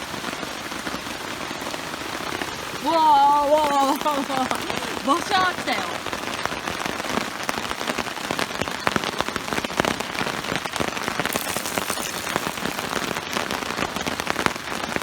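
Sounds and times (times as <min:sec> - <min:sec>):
heavy rain hissing: 0:00.0 - 0:15.0
sharp raindrop hits: 0:02.3 - 0:08.6, 0:10.6 - 0:15.0.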